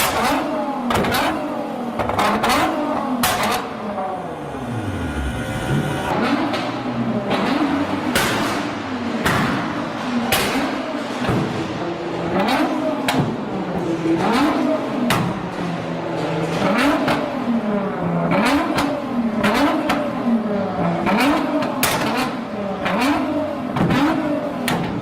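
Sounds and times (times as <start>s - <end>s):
car engine revving: 0.1s - 8.7s.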